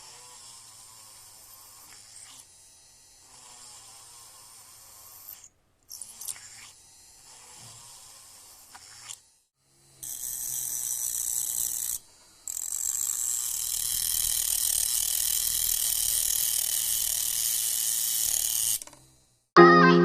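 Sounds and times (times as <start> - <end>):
motor drill whirring: 10.1 - 19.2.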